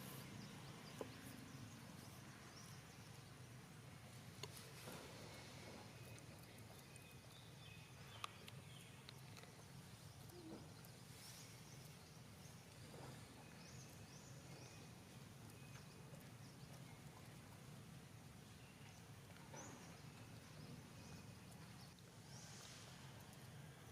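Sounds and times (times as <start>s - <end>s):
quiet background hum: 0.0s - 23.9s.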